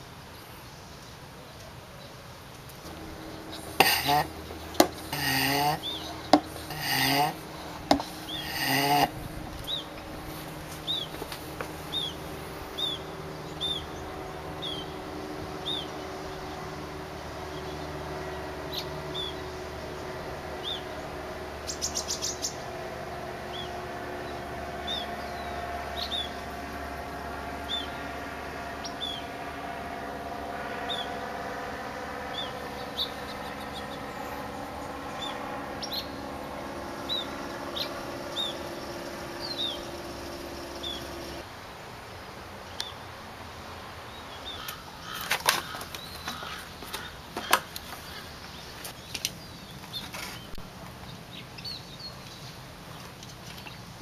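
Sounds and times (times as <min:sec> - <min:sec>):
bird chirping: 0:00.6 - 0:26.7, 0:27.6 - 0:29.4, 0:30.7 - 0:31.3, 0:32.0 - 0:41.4, 0:44.1 - 0:53.8
steady low hum: 0:02.6 - 0:42.0.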